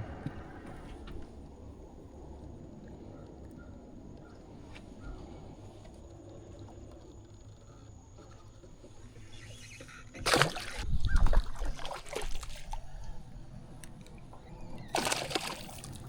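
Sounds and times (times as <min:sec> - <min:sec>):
fish splashing at water surface: 0:10.2 - 0:12.8, 0:14.8 - 0:16.0.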